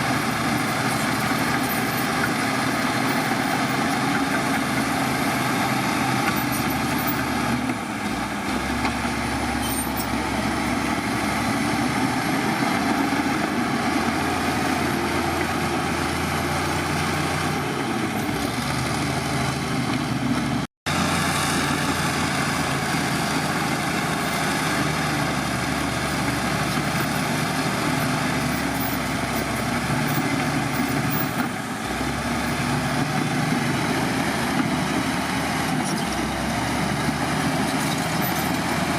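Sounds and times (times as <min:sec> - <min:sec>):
heavy diesel machinery running: 0:00.0 - 0:38.9.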